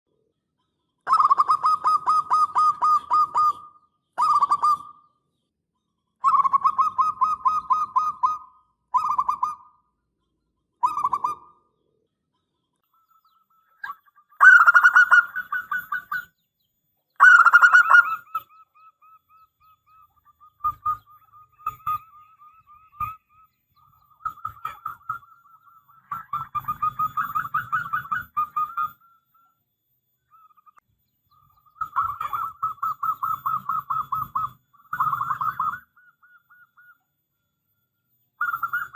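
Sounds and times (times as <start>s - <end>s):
dove cooing: 1.1s - 5.1s, 6.2s - 9.8s, 10.8s - 11.7s, 13.0s - 16.4s, 17.2s - 29.2s, 31.6s - 37.0s, 38.4s - 38.9s.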